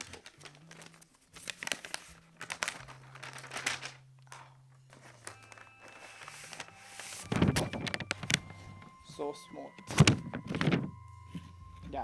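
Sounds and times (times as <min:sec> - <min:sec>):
paper sheet crinkling: 0:00.0 - 0:12.0.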